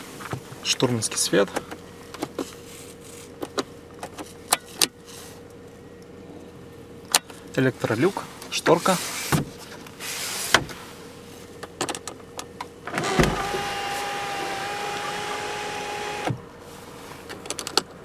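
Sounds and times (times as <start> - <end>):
sunroof motor whine: 12.9 - 16.5.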